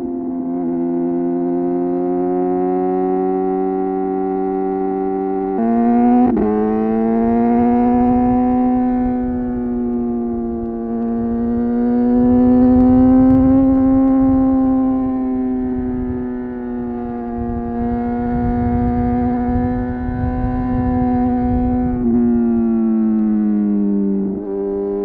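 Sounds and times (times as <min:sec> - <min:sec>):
wind and road noise: 0:00.0 - 0:25.0
motorcycle engine running: 0:02.6 - 0:25.0.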